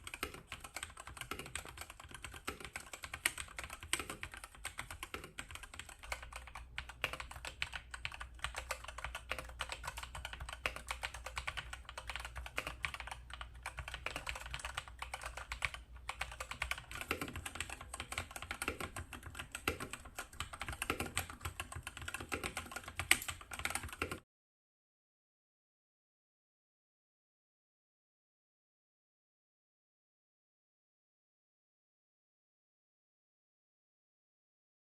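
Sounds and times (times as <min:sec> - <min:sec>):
mechanical keyboard typing: 0:00.0 - 0:24.2.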